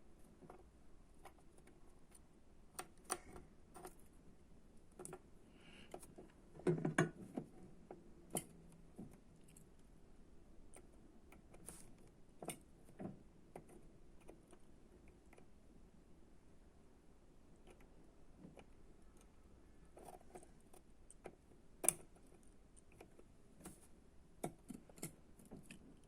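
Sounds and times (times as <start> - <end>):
tools and parts clicking and tapping: 6.6 - 9.1.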